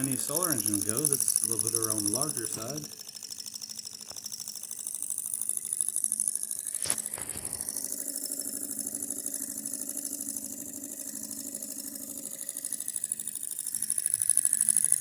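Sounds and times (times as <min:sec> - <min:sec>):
engine mechanical clatter: 0:00.0 - 0:03.1, 0:04.0 - 0:09.0.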